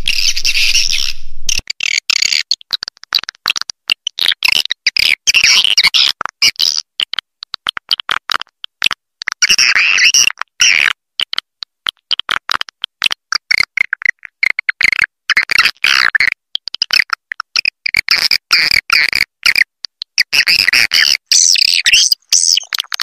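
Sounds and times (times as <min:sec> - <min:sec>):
swiftlet chirps and twitters: 0:00.0 - 0:01.6, 0:21.4 - 0:22.8.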